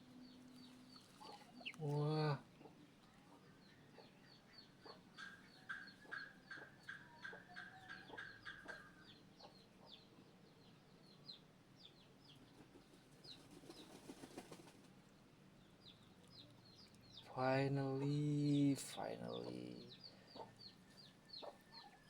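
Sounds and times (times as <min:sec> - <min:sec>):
duckling peeping: 0:00.6 - 0:02.0.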